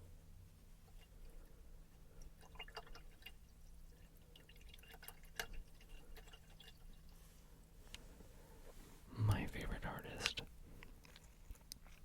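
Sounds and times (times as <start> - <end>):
water drips and trickles: 2.0 - 7.2.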